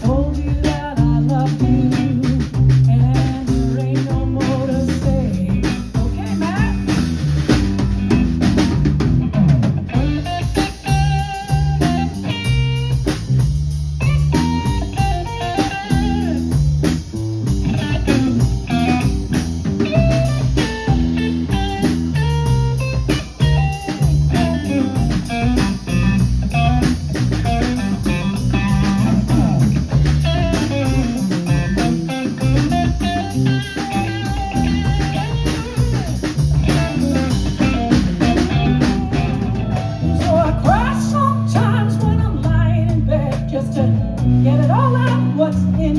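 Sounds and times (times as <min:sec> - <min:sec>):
bass guitar: 0:00.0 - 0:45.9
drum kit: 0:00.0 - 0:45.9
electric guitar melody: 0:00.0 - 0:45.9.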